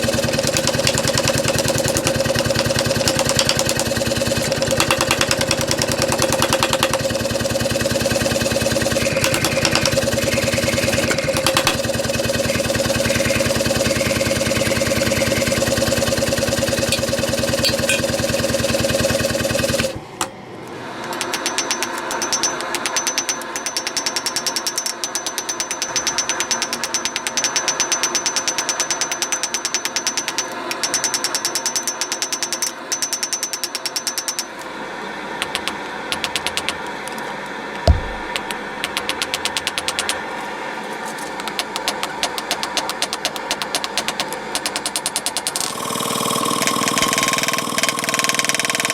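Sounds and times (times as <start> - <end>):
machine ticking with high whine: 0.0 - 20.3, 21.0 - 34.5, 38.1 - 40.2, 41.5 - 48.9
workshop machine humming: 0.0 - 24.6, 34.6 - 48.9.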